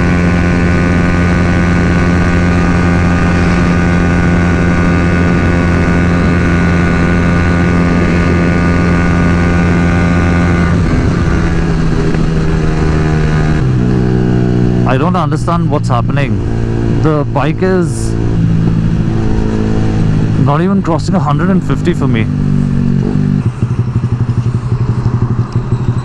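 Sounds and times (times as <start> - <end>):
wind rush: 0.0 - 21.0
motorcycle engine at full throttle: 0.0 - 26.0.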